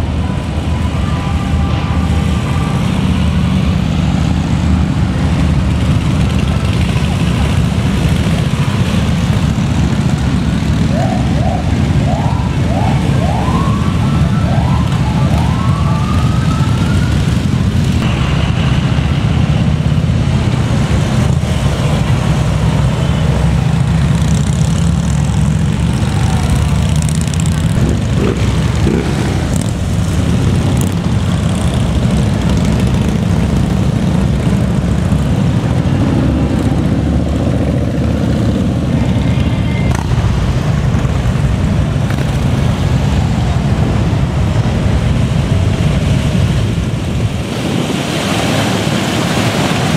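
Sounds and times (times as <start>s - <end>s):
motorcycle engines riding past: 0.0s - 49.9s
siren whooping: 10.6s - 17.7s.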